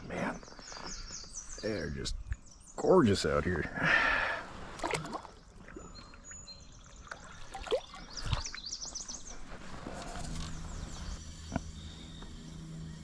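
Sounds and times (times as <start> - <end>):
songbirds chirping: 0.0 - 13.0
low steady hum: 9.2 - 13.0.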